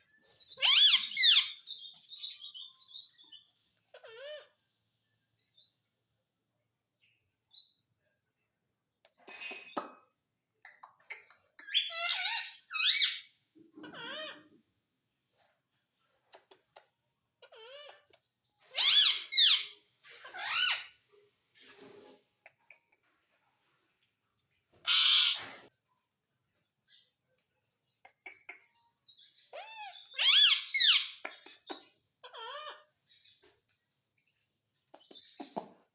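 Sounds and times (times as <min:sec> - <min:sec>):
parrot squawking: 0:00.5 - 0:02.7, 0:11.6 - 0:14.5, 0:18.7 - 0:20.9, 0:24.8 - 0:25.6, 0:29.5 - 0:31.3, 0:32.2 - 0:32.9
parrot screech: 0:18.7 - 0:20.9, 0:24.9 - 0:25.7, 0:29.6 - 0:31.2.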